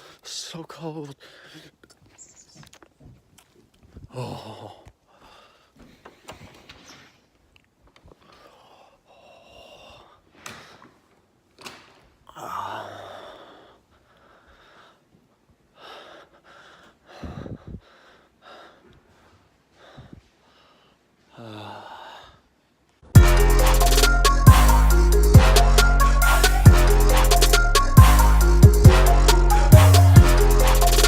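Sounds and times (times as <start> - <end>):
person gasping and breathing: 4.0 - 6.3, 12.3 - 15.1, 15.8 - 19.2, 19.8 - 22.4.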